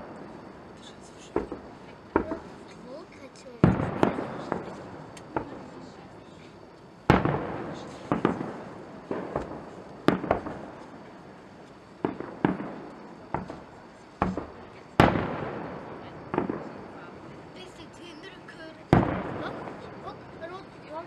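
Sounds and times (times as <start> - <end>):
firework shells bursting: 0.0 - 2.8, 6.5 - 18.2, 18.8 - 20.8.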